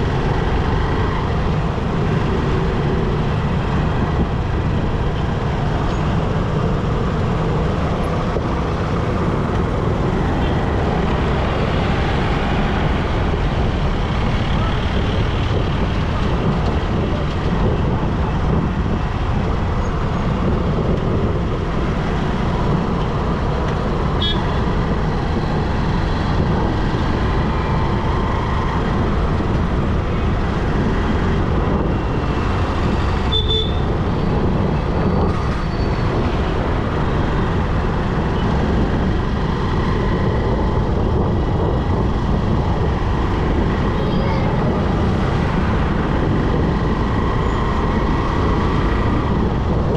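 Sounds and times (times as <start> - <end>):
motorbike road rumble: 0.0 - 49.9.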